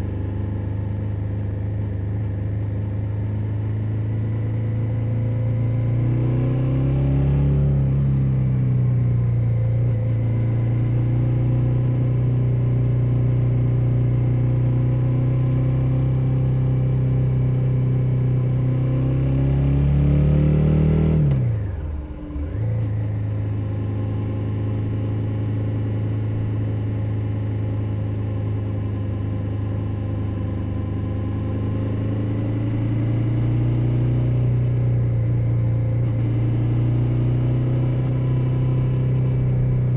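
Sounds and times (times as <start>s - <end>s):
motorcycle engine running: 0.0s - 6.6s, 20.8s - 39.9s.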